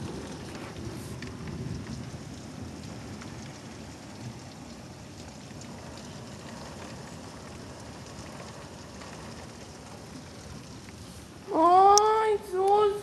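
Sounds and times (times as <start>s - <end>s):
heavy rain pattering: 0.0s - 13.0s.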